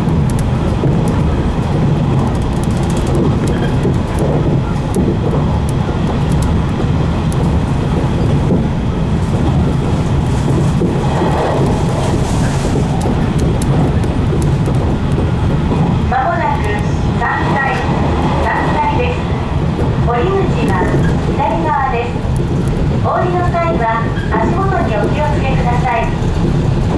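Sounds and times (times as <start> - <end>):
wheels clicking on rail: 0.0 - 16.9
train running rumble: 0.0 - 26.9.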